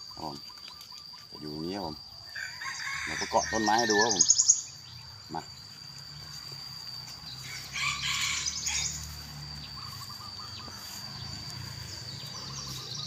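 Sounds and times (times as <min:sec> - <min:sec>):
birds calling: 0:00.0 - 0:13.0
high insect whine: 0:00.0 - 0:13.0.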